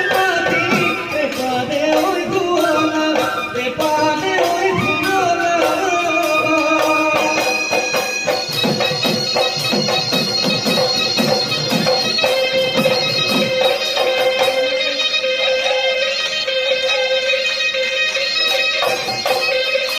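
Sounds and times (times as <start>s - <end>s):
steady drumbeat: 0.0s - 14.7s
reedy wind instrument melody: 0.0s - 19.9s.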